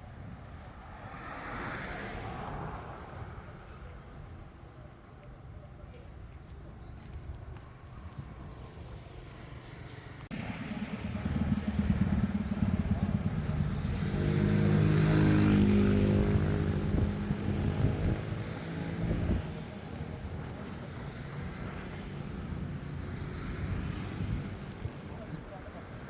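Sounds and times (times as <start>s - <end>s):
motorcycle engine passing: 9.4s - 25.6s.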